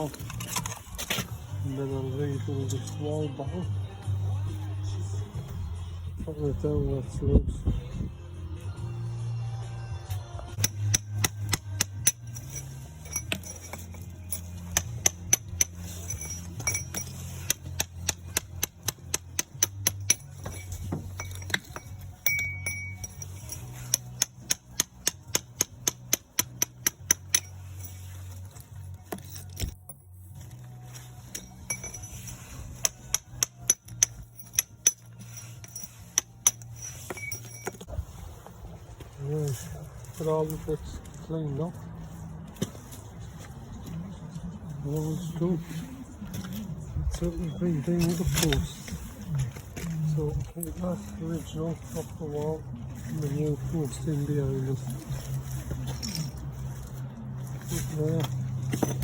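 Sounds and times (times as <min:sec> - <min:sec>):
background music: 0:00.0 - 0:59.0
hammer and chisel on brick: 0:10.5 - 0:30.0, 0:31.2 - 0:37.9, 0:57.4 - 0:59.0.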